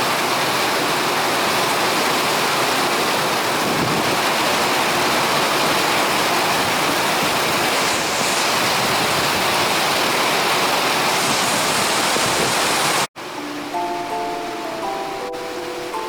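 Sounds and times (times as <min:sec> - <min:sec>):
loud rushing noise: 0:06.6 - 0:13.1
music box melody: 0:13.3 - 0:16.0.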